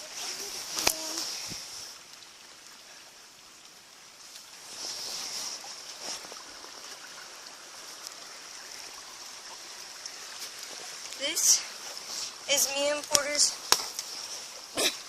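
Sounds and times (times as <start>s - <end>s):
stream flowing: 0.0s - 15.0s
faint clicks: 0.7s - 2.3s.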